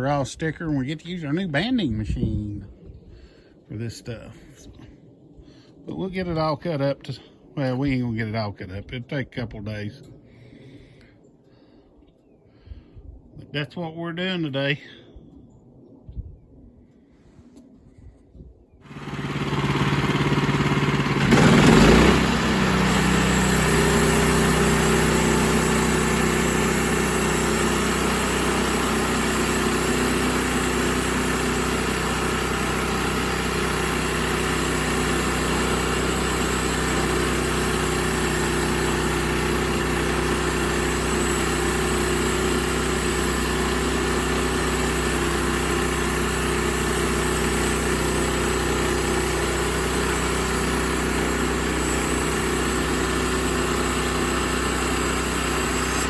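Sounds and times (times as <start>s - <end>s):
sawmill engine running: 18.9s - 56.0s.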